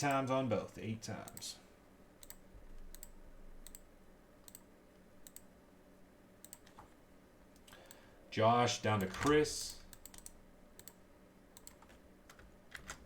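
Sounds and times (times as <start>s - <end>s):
computer mouse clicks: 2.2s - 5.5s, 6.4s - 6.9s, 9.0s - 11.0s, 11.6s - 13.0s.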